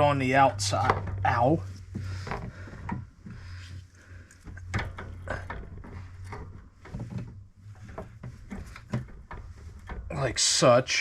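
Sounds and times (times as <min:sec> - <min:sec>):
parts knocking and clunking: 0:00.0 - 0:11.0.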